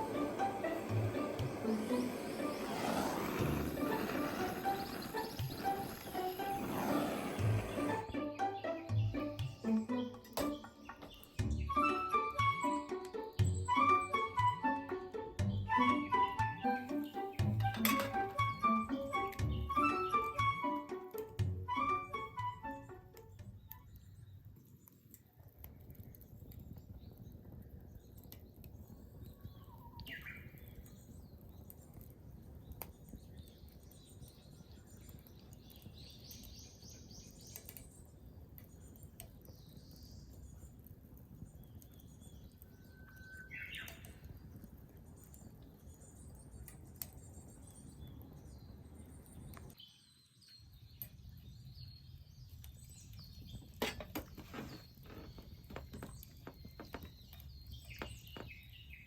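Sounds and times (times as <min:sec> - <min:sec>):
sharp crackles: 0:00.0 - 0:08.1, 0:23.6 - 0:49.8, 0:52.5 - 0:59.0
birds chirping: 0:00.0 - 0:21.2, 0:26.7 - 0:59.0.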